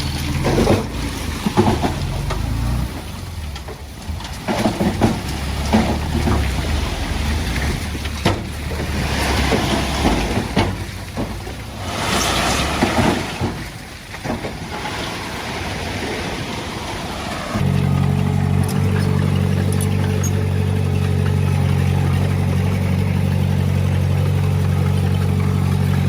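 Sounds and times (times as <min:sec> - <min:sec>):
diesel machinery engine running: 0:00.0 - 0:26.0
rushing hiss: 0:08.9 - 0:14.0, 0:14.6 - 0:17.6.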